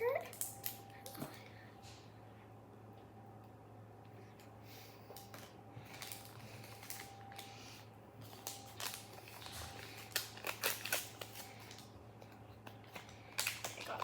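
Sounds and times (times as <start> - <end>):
plastic bag crinkling: 8.2 - 14.0.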